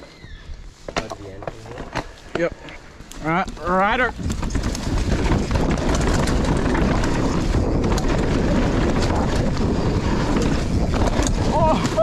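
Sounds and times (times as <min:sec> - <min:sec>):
bike rattling and knocking: 0:00.9 - 0:12.0
wind buffeting microphone: 0:03.0 - 0:12.0
tyres rumbling on dirt: 0:03.2 - 0:12.0.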